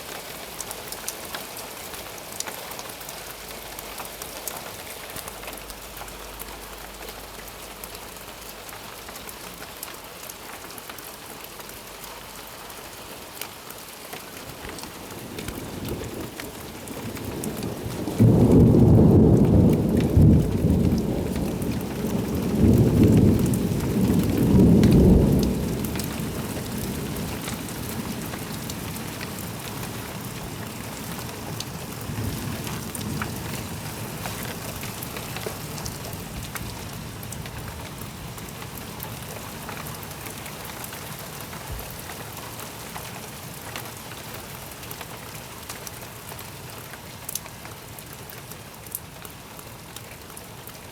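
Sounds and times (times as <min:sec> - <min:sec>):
steady rain on surfaces: 0:00.0 - 0:50.9
thunder rumbling: 0:14.8 - 0:29.5.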